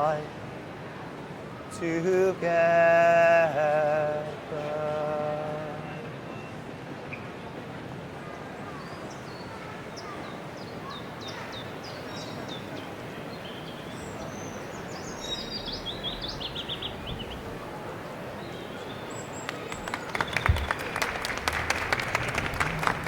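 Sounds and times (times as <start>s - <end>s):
station crowd hubbub: 0.0s - 23.0s
songbird chirping: 8.6s - 21.3s.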